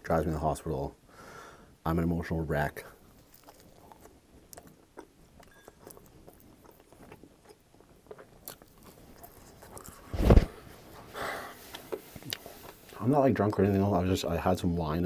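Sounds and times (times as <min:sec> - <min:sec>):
chewing crunchy crust: 0:03.0 - 0:10.1.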